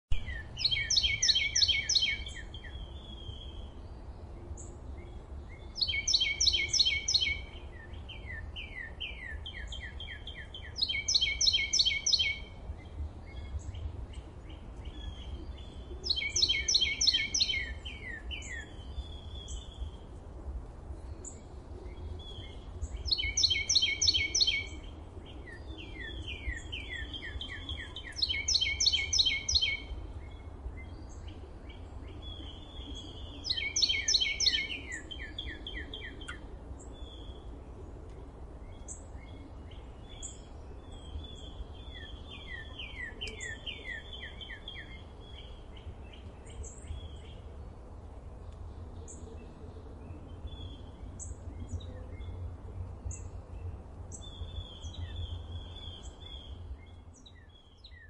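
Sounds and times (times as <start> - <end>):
songbird singing: 0.1 - 58.0
steady low rumble: 12.4 - 57.9.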